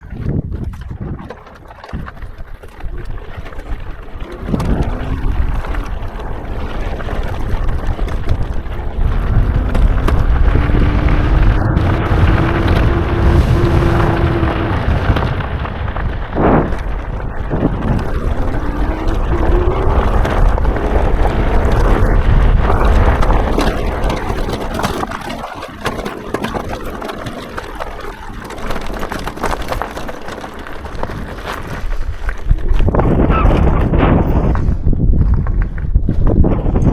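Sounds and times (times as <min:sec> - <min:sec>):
wind buffeting microphone: 0:00.0 - 0:36.9
electric motor whine: 0:08.9 - 0:16.6.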